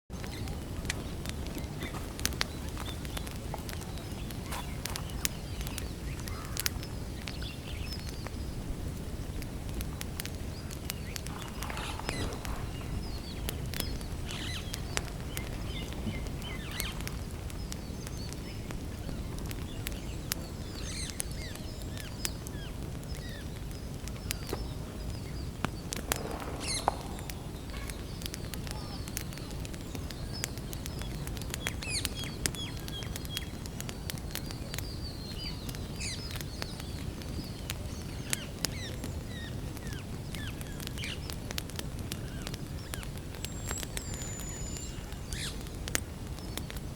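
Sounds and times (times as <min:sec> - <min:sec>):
campfire crackling and popping: 0:00.1 - 0:46.9
steady low rumble: 0:00.2 - 0:20.8, 0:24.8 - 0:30.2
birds chirping: 0:00.2 - 0:41.6, 0:42.2 - 0:46.9.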